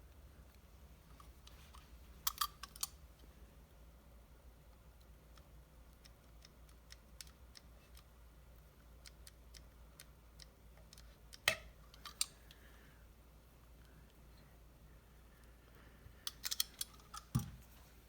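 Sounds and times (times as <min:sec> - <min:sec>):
small metal parts clicking: 0:02.2 - 0:03.0, 0:16.2 - 0:17.4.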